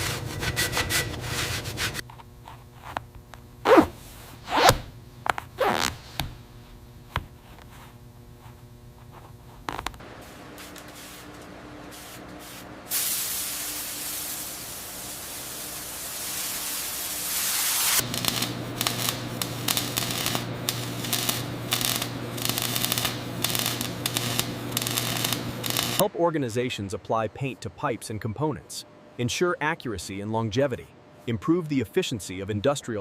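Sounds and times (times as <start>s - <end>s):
machine hum with clicking: 2.0s - 3.7s, 4.8s - 12.9s, 18.0s - 26.0s
spray gun hissing: 10.2s - 26.0s.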